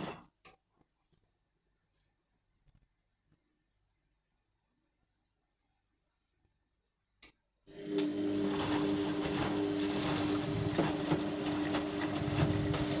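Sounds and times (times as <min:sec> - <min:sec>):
washing machine humming: 0:07.7 - 0:13.0
water sloshing: 0:08.6 - 0:13.0.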